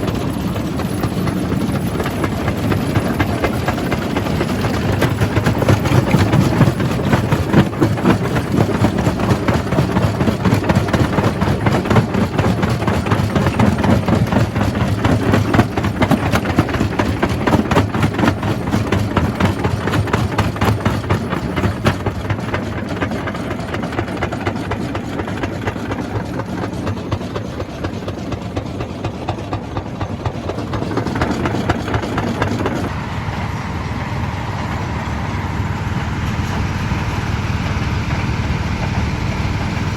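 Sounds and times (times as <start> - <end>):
low machine hum: 32.7 - 39.9.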